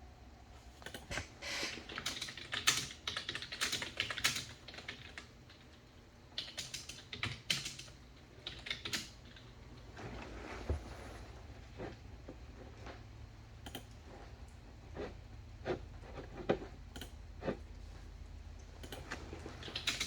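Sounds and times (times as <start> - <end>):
typing on computer keyboard: 0.8 - 5.8, 6.4 - 9.5, 13.6 - 13.9, 18.8 - 20.0.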